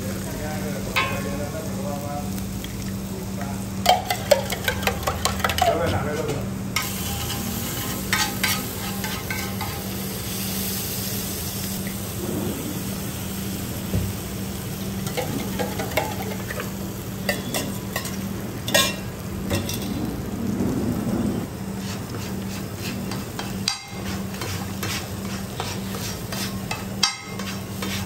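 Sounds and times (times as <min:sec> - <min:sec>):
oil sizzling on a griddle: 0:00.0 - 0:28.0
metal spatula scraping iron: 0:06.8 - 0:09.8, 0:22.8 - 0:28.0.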